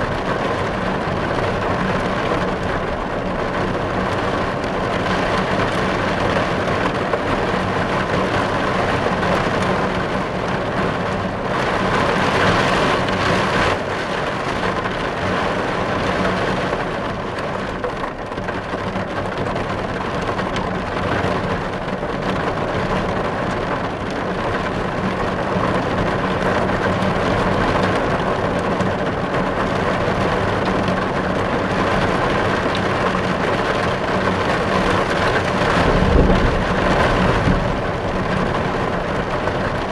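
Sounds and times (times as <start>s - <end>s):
heavy rain on car windows: 0.0s - 39.9s.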